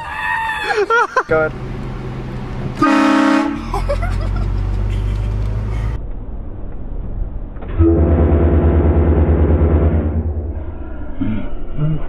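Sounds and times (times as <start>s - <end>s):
vehicle engine rumbling: 0.0s - 12.0s
pulsing engine drone: 7.2s - 12.0s.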